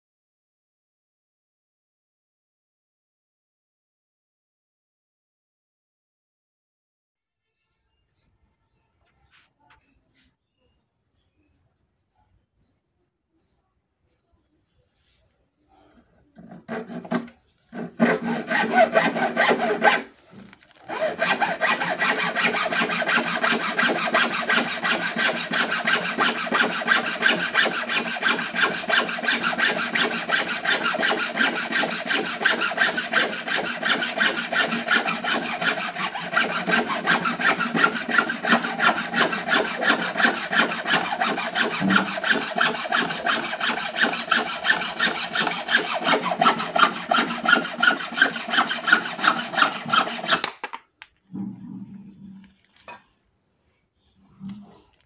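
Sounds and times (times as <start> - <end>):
hacksaw cutting: 16.4 - 50.8.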